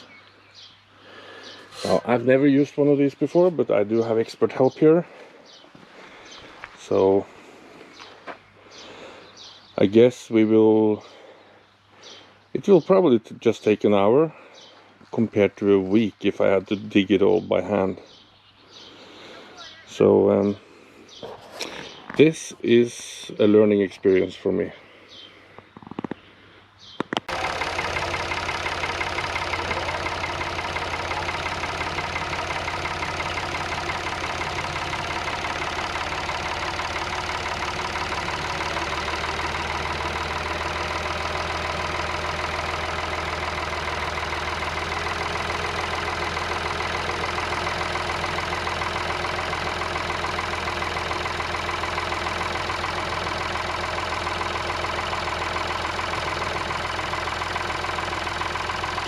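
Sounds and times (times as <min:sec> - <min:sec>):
tractor engine running under load: 0:00.0 - 0:10.5, 0:27.2 - 0:59.0.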